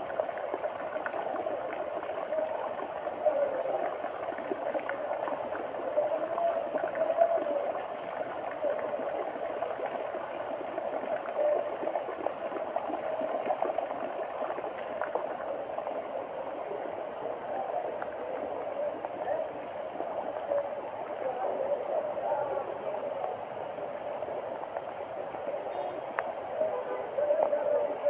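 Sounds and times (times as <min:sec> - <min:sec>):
floodwater flowing and gurgling: 0:00.0 - 0:28.0
small splashy ticks: 0:26.1 - 0:26.4.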